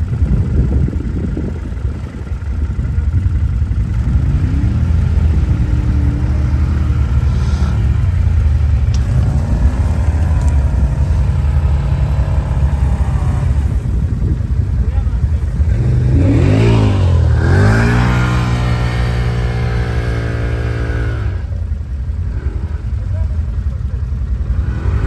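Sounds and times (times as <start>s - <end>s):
quad bike engine revving: 0.0s - 25.0s.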